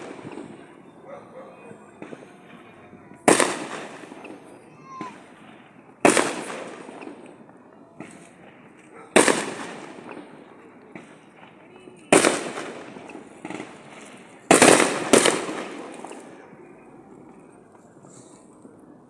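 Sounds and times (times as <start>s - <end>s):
faint firework pops: 0.0s - 0.8s, 1.7s - 19.0s
firework shell bursts: 2.0s - 16.4s.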